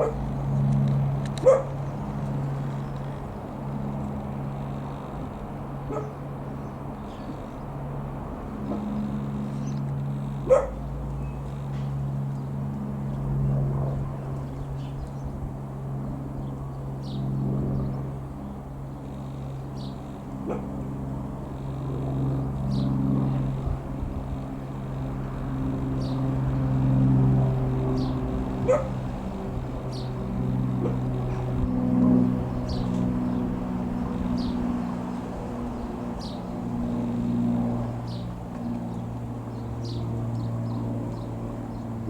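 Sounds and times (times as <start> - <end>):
dog barking: 0.0 - 0.2, 1.4 - 1.7, 5.9 - 6.2, 10.4 - 10.8, 20.4 - 20.7, 28.6 - 29.0, 30.8 - 31.4
propeller aircraft droning overhead: 0.0 - 42.0.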